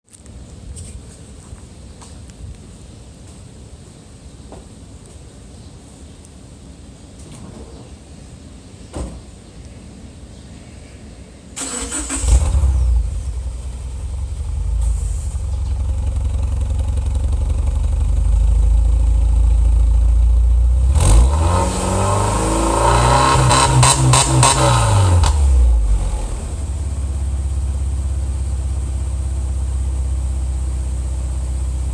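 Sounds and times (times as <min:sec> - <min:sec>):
car engine cranking: 0:11.6 - 0:18.4
car engine revving: 0:11.6 - 0:18.6, 0:20.7 - 0:27.6
car engine idling: 0:11.6 - 0:31.9.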